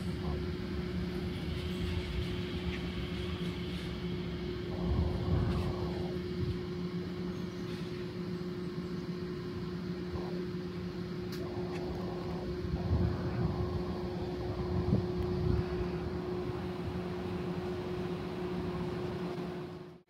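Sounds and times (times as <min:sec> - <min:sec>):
train mechanical hum: 0:00.0 - 0:20.0
rushing noise: 0:11.4 - 0:19.0.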